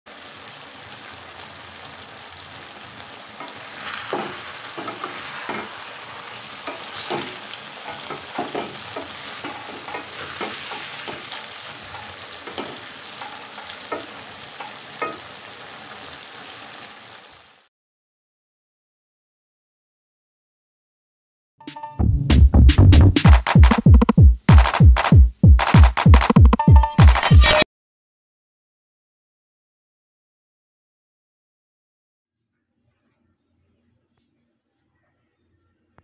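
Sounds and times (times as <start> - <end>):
food sizzling in hot oil: 0.1 - 17.7
spatula scraping a pan: 3.4 - 15.7.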